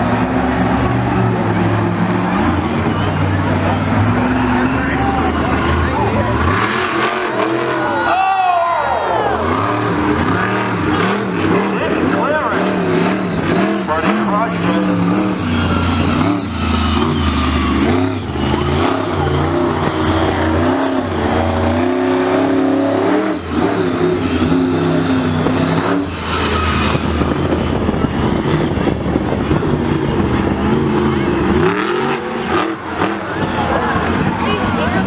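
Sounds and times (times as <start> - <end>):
racing engines revving: 0.0 - 35.0.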